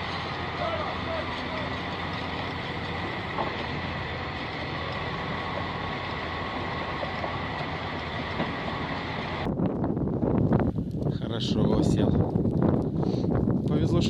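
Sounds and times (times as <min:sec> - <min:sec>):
truck engine rumbling: 0:00.0 - 0:12.8.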